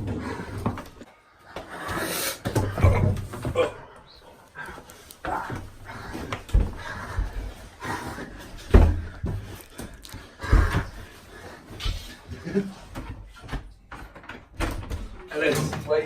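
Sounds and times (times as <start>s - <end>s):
heavy thumps: 5.3s - 11.1s.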